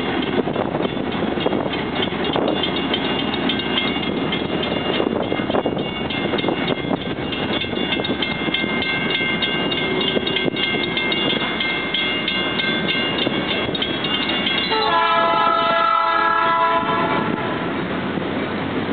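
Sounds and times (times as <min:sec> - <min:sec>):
train running noise: 0:00.0 - 0:18.9
locomotive horn blast: 0:14.7 - 0:17.8.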